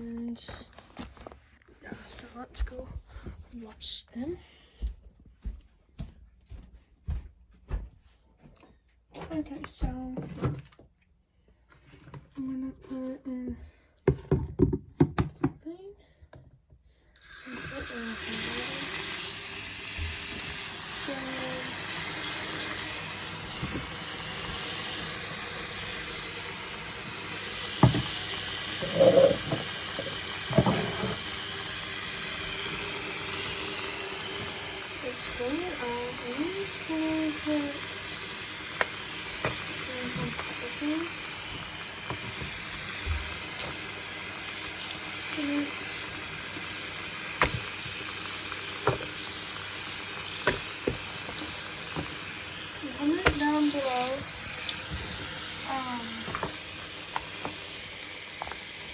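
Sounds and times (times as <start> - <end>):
tap water running into container: 17.2 - 58.9.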